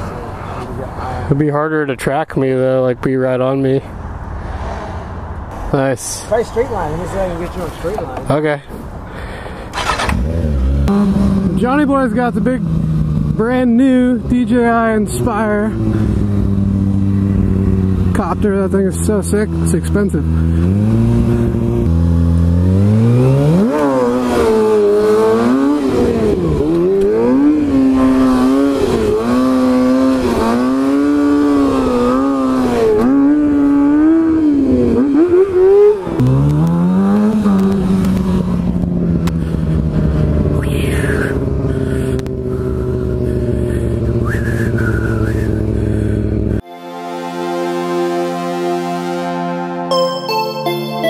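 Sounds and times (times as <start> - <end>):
motorcycle engine revving: 9.7 - 46.6.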